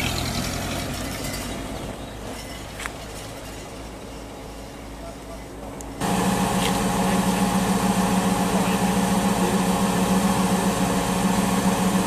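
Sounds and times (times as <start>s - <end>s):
car engine idling: 6.0s - 12.0s.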